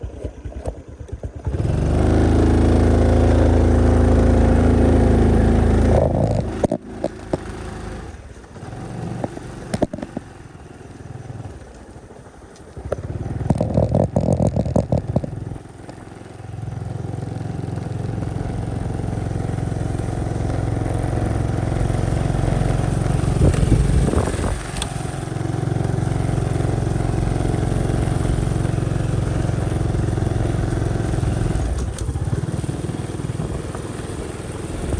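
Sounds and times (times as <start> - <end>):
motorcycle engine running: 0.0 - 34.9
knocks and rattles: 12.9 - 15.4.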